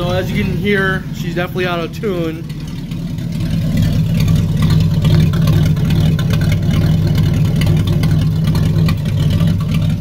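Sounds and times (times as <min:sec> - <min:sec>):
rough engine idling: 0:00.0 - 0:10.0.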